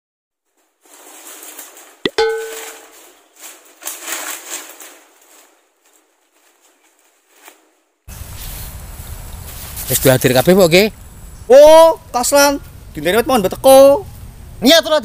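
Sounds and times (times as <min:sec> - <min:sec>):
sharp metallic clang: 0:02.1 - 0:03.0.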